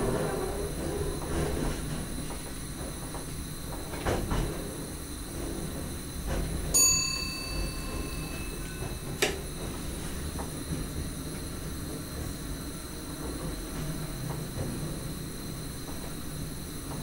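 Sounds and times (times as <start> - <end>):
train rumbling on rails: 0.0 - 17.0
bell-like ding: 6.8 - 9.1.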